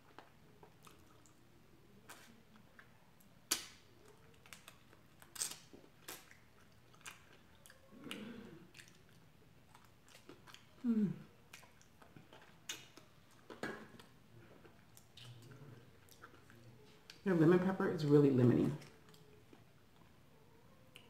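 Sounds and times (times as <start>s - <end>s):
person chewing and biting: 3.5s - 10.8s, 11.4s - 17.2s.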